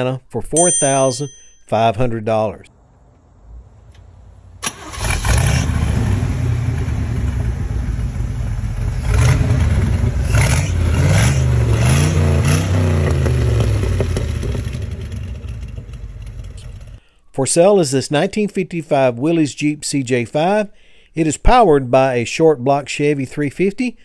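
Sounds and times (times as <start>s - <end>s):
engine starting and idling: 3.9s - 10.7s, 12.7s - 17.0s
engine revving: 4.5s - 17.0s.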